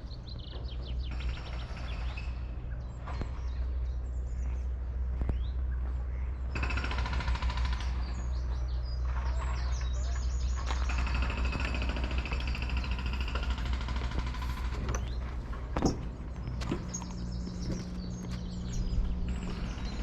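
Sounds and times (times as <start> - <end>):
small birds singing: 0.0 - 20.0
low rumble: 7.8 - 20.0.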